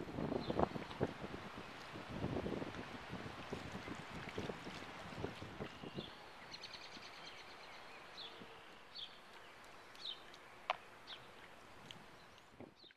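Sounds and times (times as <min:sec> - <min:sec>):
steady outdoor hiss: 0:00.0 - 0:12.9
small birds chirping: 0:05.6 - 0:12.9.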